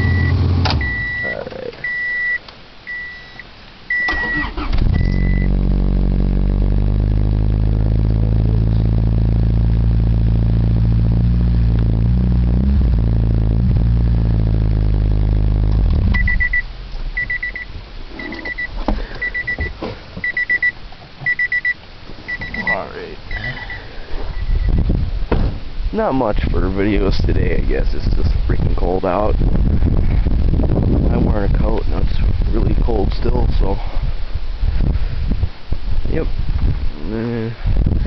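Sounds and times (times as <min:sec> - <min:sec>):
car engine cranking: 0:00.0 - 0:01.2, 0:03.9 - 0:09.4
car warning chime beeping: 0:00.0 - 0:05.6, 0:16.2 - 0:24.8
car engine idling: 0:04.2 - 0:24.3.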